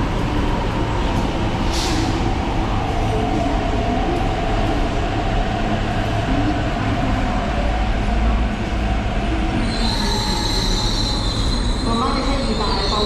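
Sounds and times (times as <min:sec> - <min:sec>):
electric train rumbling: 0:00.0 - 0:13.0
mid-pitched train tone: 0:09.4 - 0:13.0.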